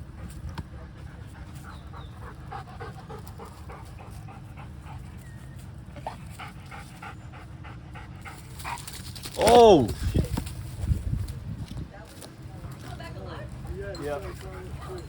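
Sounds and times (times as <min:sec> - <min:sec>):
dog panting: 0:00.0 - 0:09.4, 0:12.6 - 0:15.0.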